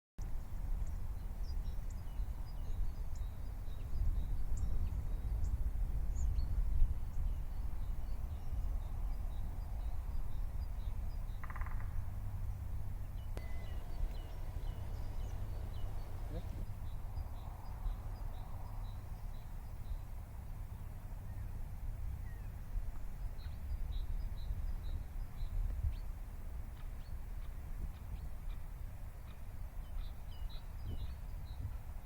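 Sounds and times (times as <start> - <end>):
steady low rumble: 11.9 - 18.0
bird chirps: 13.0 - 20.0
buzzing call: 13.4 - 16.7.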